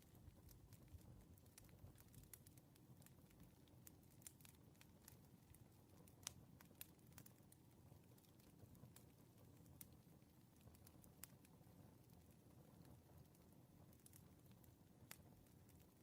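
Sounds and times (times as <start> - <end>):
fire pops and snaps: 0.0 - 16.0
wood fire crackling: 0.0 - 16.0.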